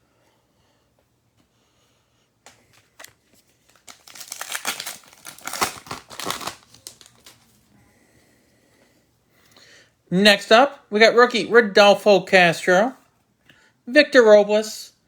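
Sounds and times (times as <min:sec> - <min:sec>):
plastic wrapper crinkling and tearing: 0:02.7 - 0:07.6.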